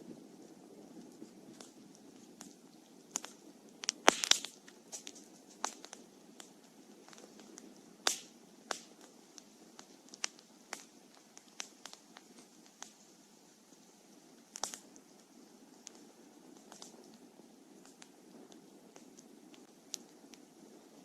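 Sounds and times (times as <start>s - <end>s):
burning wood popping: 0.0s - 21.0s
flame rushing: 0.0s - 21.0s
wood fire crackling: 0.0s - 21.0s.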